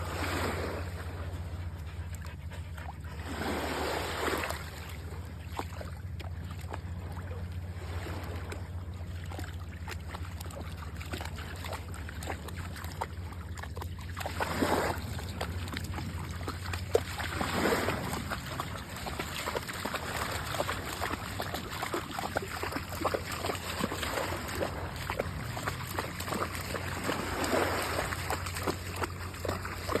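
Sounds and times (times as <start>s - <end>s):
steady low rumble: 0.0s - 30.0s
dog panting: 1.3s - 3.3s
surf washing in: 3.2s - 4.7s, 26.9s - 28.4s.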